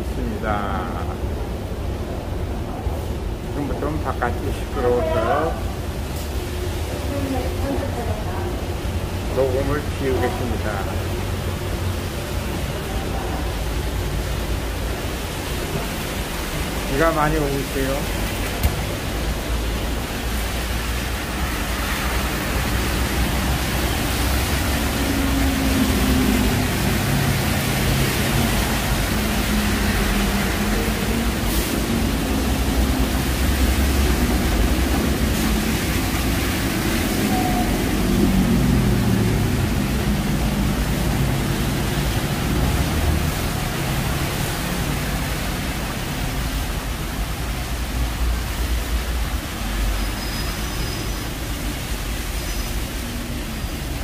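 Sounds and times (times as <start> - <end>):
heavy rain on wet streets: 0.0 - 54.0
passing traffic engine hum: 18.0 - 54.0.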